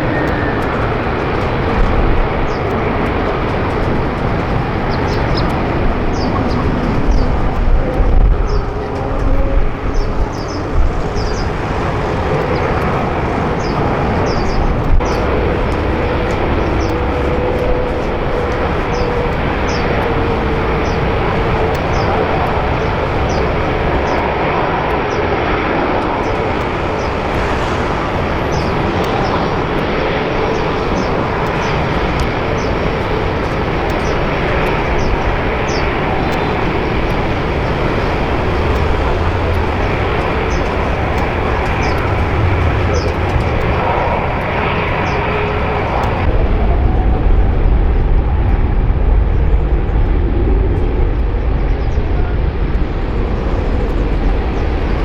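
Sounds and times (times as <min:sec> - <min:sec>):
jet airliner engine rushing: 0:00.0 - 0:55.0.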